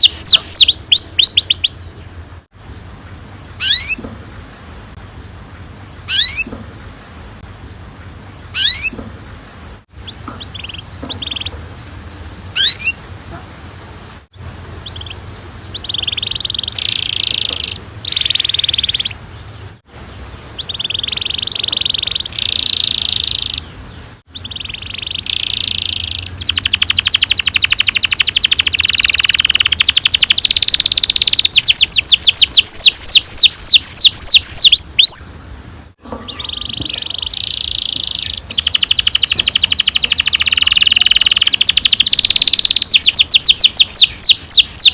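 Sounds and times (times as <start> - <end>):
canary singing trills: 0.0 - 2.2, 3.5 - 4.1, 6.0 - 6.6, 8.5 - 9.0, 10.0 - 13.4, 14.7 - 19.8, 20.5 - 35.3, 36.1 - 44.9.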